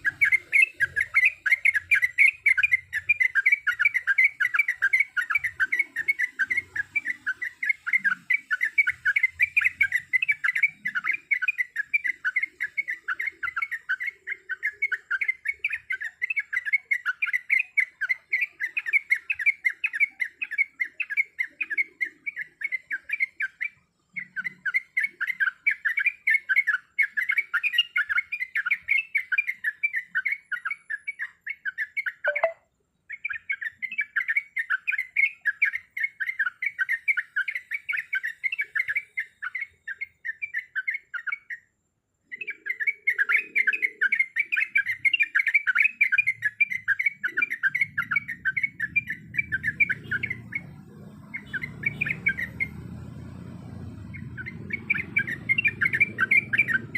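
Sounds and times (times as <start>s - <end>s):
bird chattering bubbly notes: 32.1s - 32.7s.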